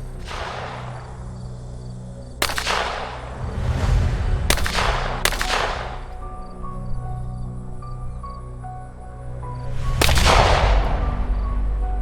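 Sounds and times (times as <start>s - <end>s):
gunshots with echo: 0.0s - 3.8s, 4.4s - 6.6s, 9.9s - 11.2s.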